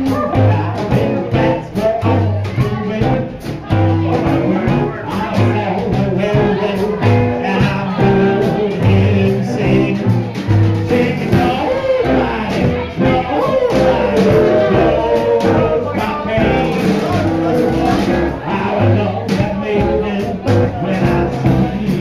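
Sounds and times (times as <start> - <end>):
live swing band playing: 0.0 - 22.0
person singing: 0.0 - 22.0.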